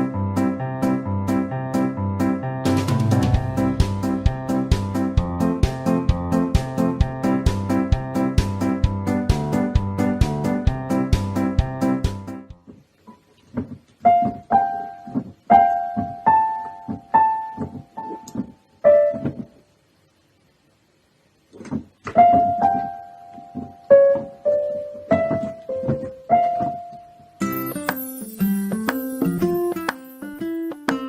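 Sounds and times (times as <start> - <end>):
piano playing single notes: 2.4 - 5.8, 22.1 - 31.0.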